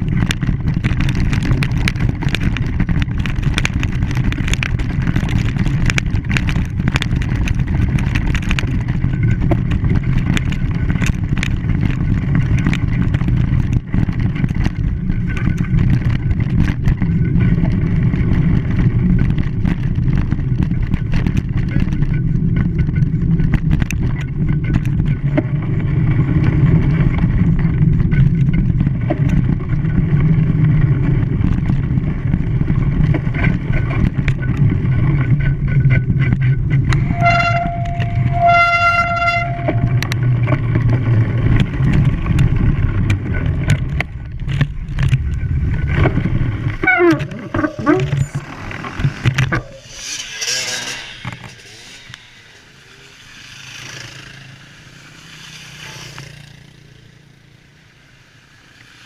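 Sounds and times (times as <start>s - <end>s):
vehicle rumble: 0.0s - 59.0s
horn tooting: 37.0s - 40.2s.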